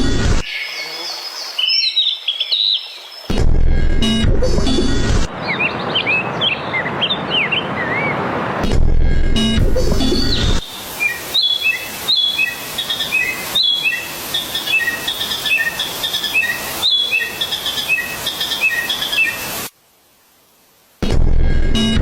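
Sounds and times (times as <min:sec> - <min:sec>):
faint hiss: 0:10.6 - 0:21.0.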